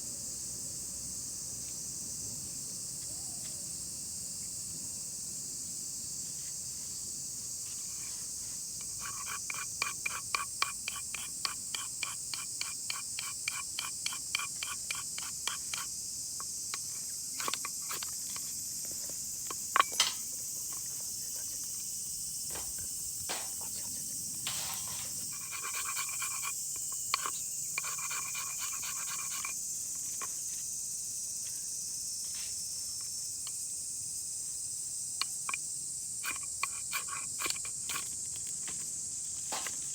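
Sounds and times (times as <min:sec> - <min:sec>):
insects droning: 0:00.0 - 0:39.9
sharp knock: 0:22.5 - 0:23.6
quick regular scraping strokes: 0:24.4 - 0:30.5.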